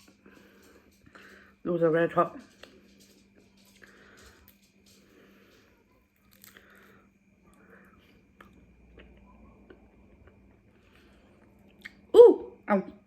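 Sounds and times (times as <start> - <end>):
faint chewing: 2.4 - 12.1
mouth clicks and crunches: 6.2 - 6.9.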